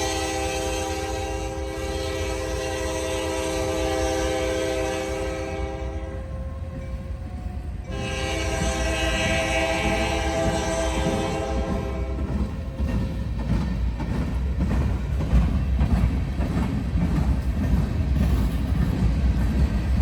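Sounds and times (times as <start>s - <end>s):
train air horn blowing a chord: 0.0s - 6.3s, 7.9s - 12.3s
low rumble of train: 0.0s - 20.0s.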